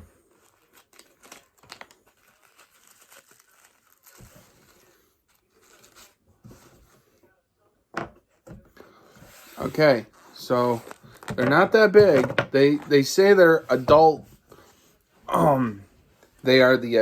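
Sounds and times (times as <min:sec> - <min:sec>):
packaging crinkling and tearing: 0:00.2 - 0:06.2.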